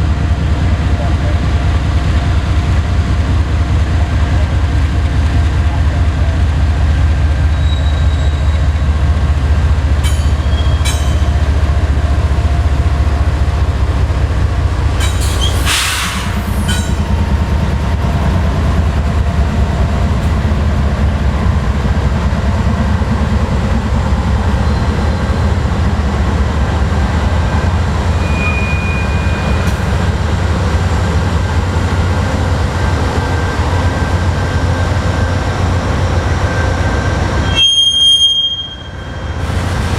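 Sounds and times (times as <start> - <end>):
train rumbling on rails: 0.0 - 39.9
high wheel squeal: 7.5 - 8.8, 10.0 - 11.3, 15.0 - 17.2, 28.1 - 29.8, 37.4 - 39.4.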